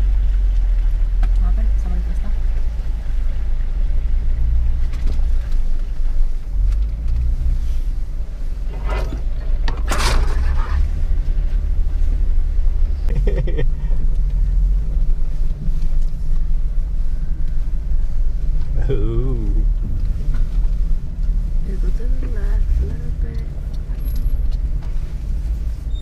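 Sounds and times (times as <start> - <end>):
off-road vehicle engine rumbling: 0.0 - 26.0.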